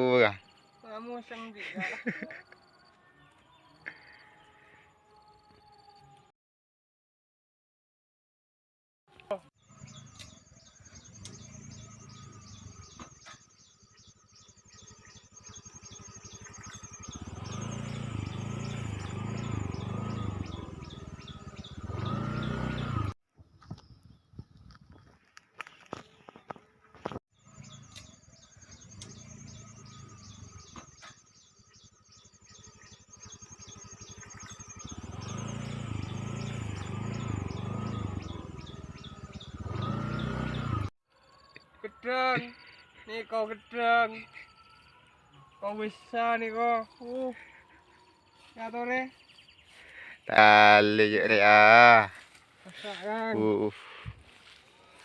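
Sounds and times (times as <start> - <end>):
bird chirping rapidly: 9.6 - 23.0, 27.4 - 40.9.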